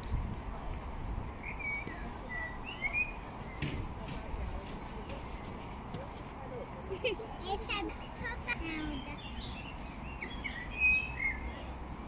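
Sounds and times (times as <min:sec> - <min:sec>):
bird chirps: 0:01.4 - 0:03.6, 0:08.8 - 0:11.8.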